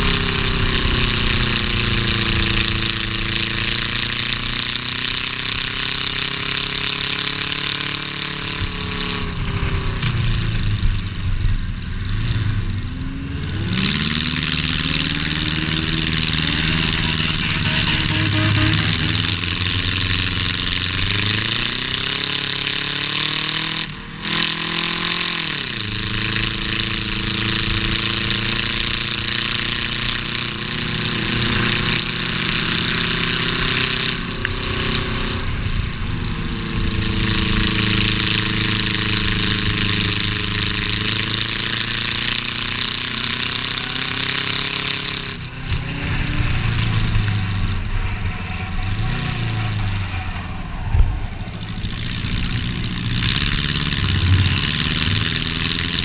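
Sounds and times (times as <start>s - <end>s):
race car engine revving: 0.0s - 56.0s
wind and road noise: 0.0s - 56.0s.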